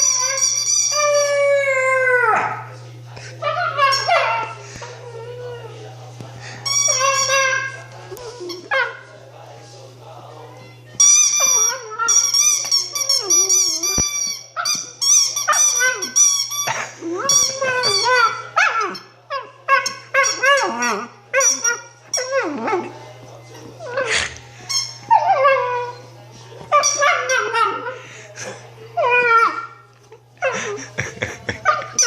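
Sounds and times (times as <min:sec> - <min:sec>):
rubber squeaky toy squeaking: 0:00.0 - 0:01.3, 0:06.6 - 0:07.8, 0:11.0 - 0:19.0, 0:26.7 - 0:27.7.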